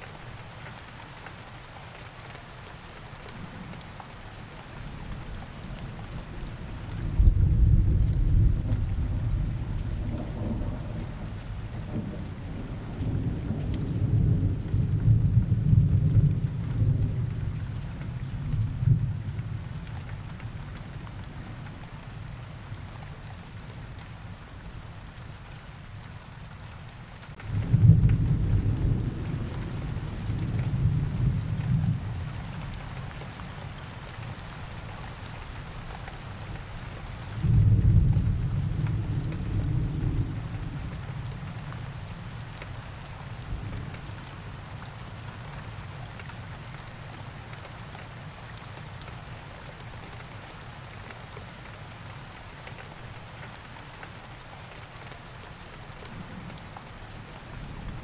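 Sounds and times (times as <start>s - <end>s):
steady rain: 0.0s - 58.0s
thunder rumbling: 6.2s - 17.5s, 27.5s - 32.2s, 37.4s - 41.6s.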